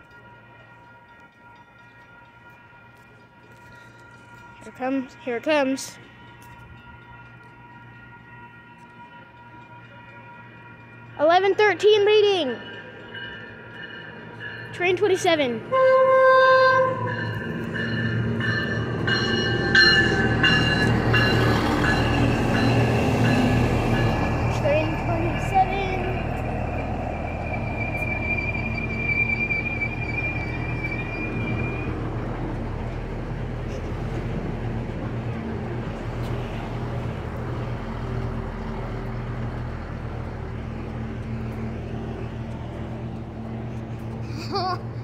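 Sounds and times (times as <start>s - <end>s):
train engine drone: 0.0s - 45.0s
high-pitched metallic squeals: 25.3s - 32.0s.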